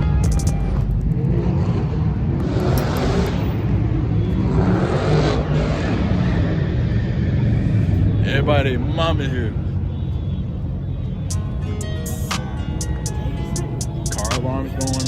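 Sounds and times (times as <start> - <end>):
car engines rumbling: 0.0 - 15.0
cars driving past: 0.0 - 15.0.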